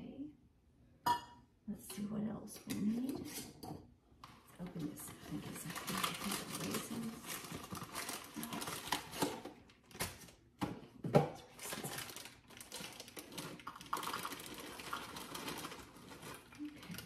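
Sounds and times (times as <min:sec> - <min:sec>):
crinkling packaging: 0:04.2 - 0:10.5, 0:11.4 - 0:17.0.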